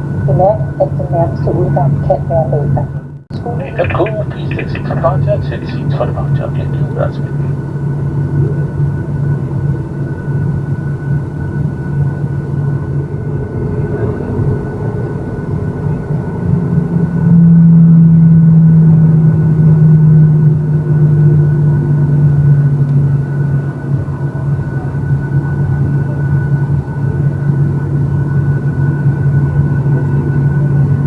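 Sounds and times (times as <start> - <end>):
aircraft cabin engine drone: 0.0 - 31.0.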